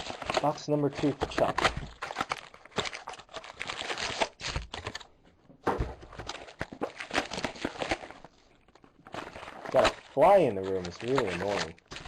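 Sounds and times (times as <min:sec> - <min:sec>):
plastic wrap crinkling: 0:00.0 - 0:05.2, 0:06.0 - 0:12.0
cardboard rustling: 0:00.0 - 0:12.0.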